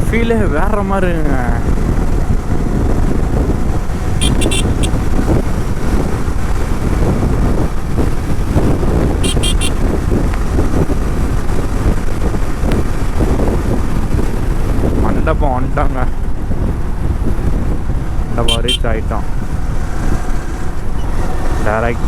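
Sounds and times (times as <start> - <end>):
motorcycle road noise: 0.0 - 22.0
wind rush: 0.0 - 22.0
short high-pitched horn beeps: 4.2 - 5.0, 9.2 - 9.8, 18.5 - 18.8.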